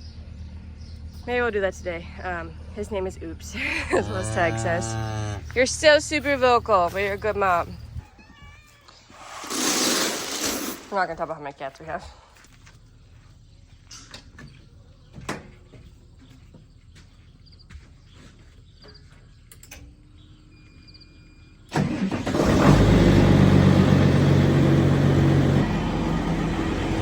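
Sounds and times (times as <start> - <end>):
farm machine engine running: 21.7 - 27.0.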